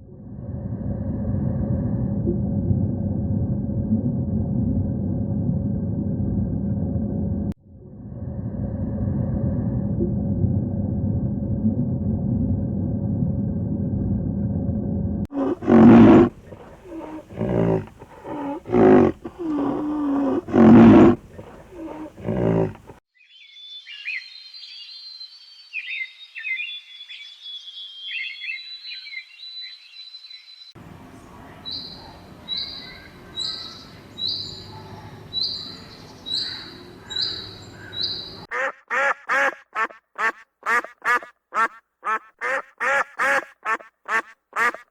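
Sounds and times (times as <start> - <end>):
loud low animal calls: 15.3 - 23.0, 36.3 - 44.9
high chirping bird calls: 35.4 - 44.8.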